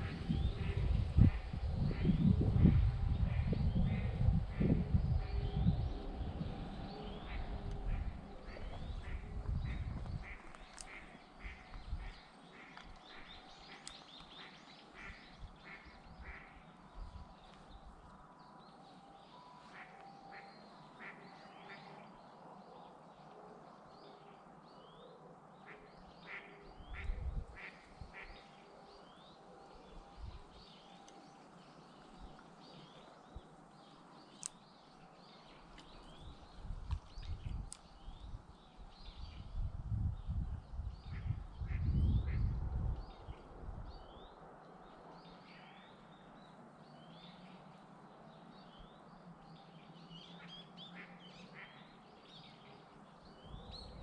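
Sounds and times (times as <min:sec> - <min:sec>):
low rumble on microphone: 0:00.0 - 0:10.6, 0:35.9 - 0:44.3.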